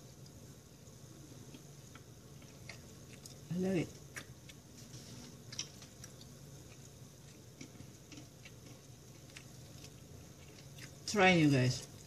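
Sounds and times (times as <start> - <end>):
person chewing crunchy food: 1.4 - 11.2.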